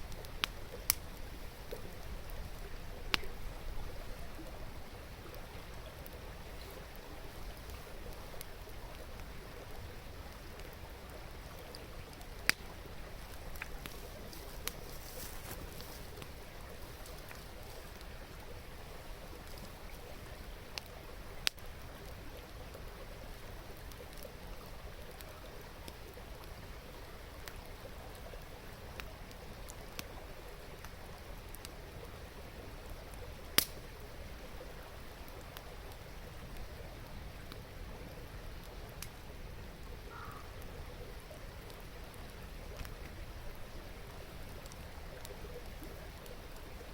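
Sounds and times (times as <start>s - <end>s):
river babbling: 0.0s - 46.9s
wood fire crackling: 0.0s - 46.9s
sharp pops of fire: 12.4s - 12.7s, 33.5s - 33.9s.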